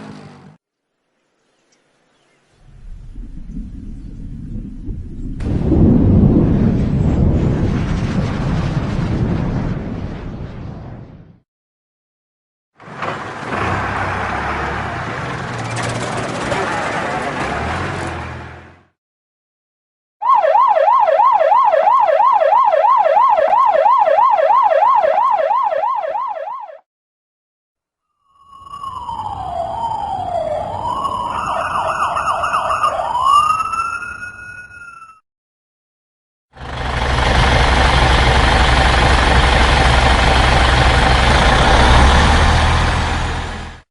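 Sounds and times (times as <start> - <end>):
heavy vehicle engine running: 12.8 - 18.9, 36.6 - 43.8
emergency siren yelp: 20.2 - 26.9, 28.3 - 35.2.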